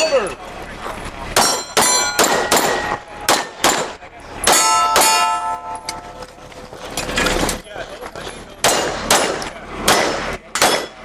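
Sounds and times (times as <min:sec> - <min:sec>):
pistol shots: 0:01.4 - 0:05.8, 0:08.6 - 0:11.0
steel plates clanging: 0:01.4 - 0:11.0.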